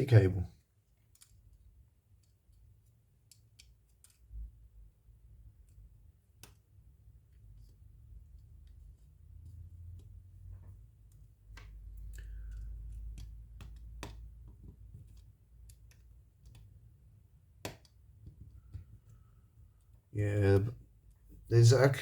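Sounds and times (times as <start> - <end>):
small tools and phone parts clicking: 1.0 - 4.4, 8.3 - 16.7.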